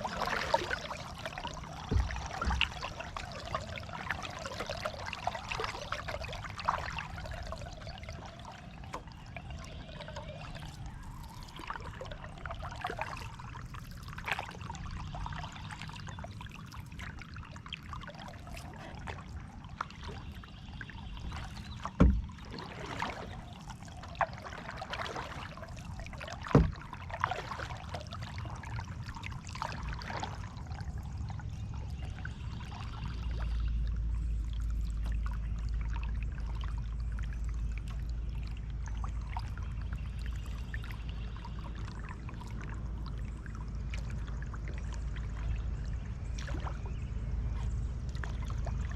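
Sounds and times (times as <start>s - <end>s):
paddle splashing water: 0.0s - 48.9s.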